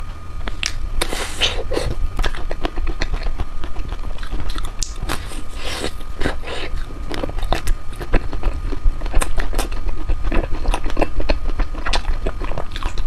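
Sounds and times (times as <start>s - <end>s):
steady low rumble: 0.0s - 13.0s
lip smacks: 0.5s - 8.4s
person eating ice cream: 0.5s - 13.0s
chewing clicks and crackles: 1.7s - 13.0s.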